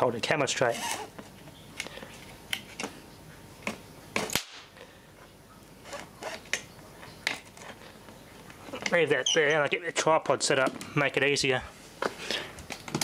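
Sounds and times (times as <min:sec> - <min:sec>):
sharp snaps of sparking: 0:04.3 - 0:04.8.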